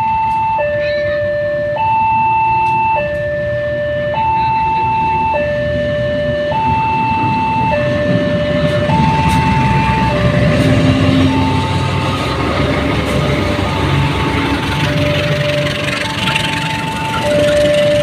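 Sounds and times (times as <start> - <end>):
level crossing two-tone alarm: 0.0 - 12.4, 13.4 - 18.0
approaching train rumble: 4.5 - 18.0.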